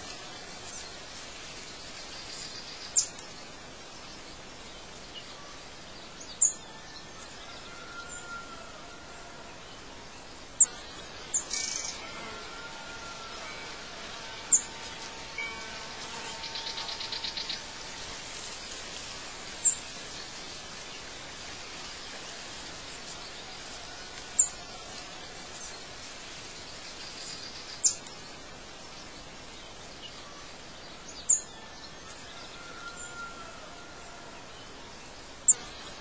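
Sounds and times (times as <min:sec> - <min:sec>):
steady outdoor hiss: 0:00.0 - 0:36.0
bird trill: 0:14.5 - 0:14.8.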